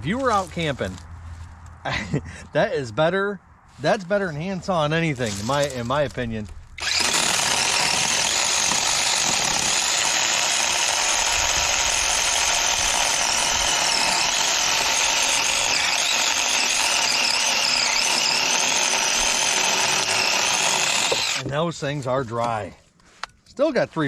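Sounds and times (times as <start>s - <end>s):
electric chainsaw cutting wood: 6.8s - 21.5s.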